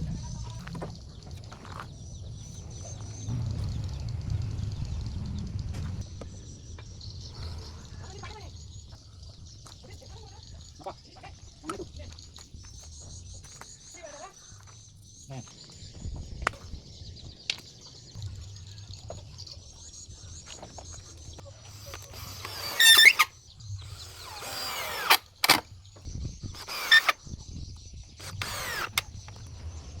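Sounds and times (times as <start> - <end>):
power tool cutting wood: 21.7 - 25.7, 26.6 - 27.2, 28.2 - 29.5.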